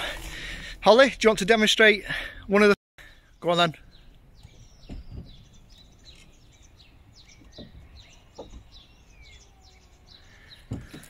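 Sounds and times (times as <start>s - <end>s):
birds chirping and singing: 0.0s - 11.0s.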